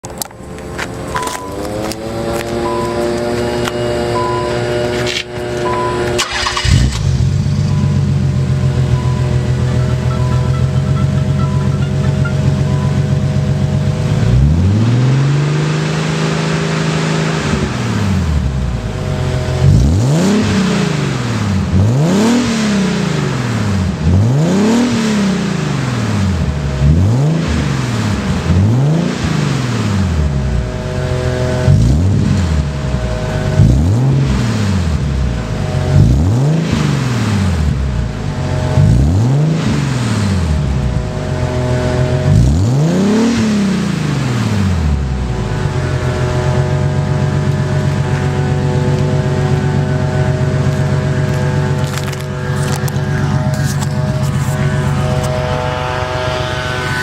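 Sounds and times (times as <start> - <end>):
car engine revving: 0.0 - 57.0
leaf blower running: 0.7 - 7.1, 44.9 - 57.0.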